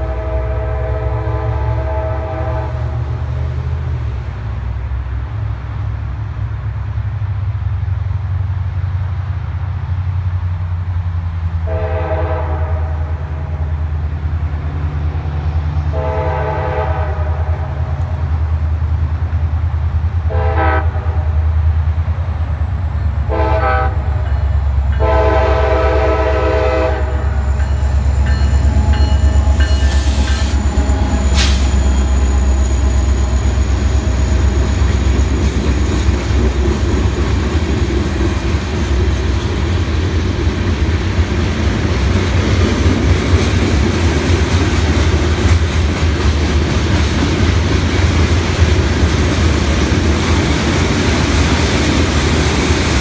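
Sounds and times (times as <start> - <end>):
locomotive air horn: 0.0 - 3.1, 11.6 - 13.7, 15.9 - 17.9, 20.3 - 21.3, 23.3 - 24.3, 24.9 - 27.7, 28.6 - 34.8
freight train rumbling: 0.0 - 53.0
wheels clattering on rails: 27.2 - 53.0.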